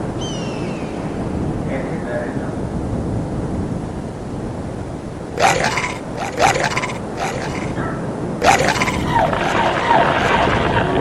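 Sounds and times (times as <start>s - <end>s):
short loud voice-like calls: 5.4s - 10.6s.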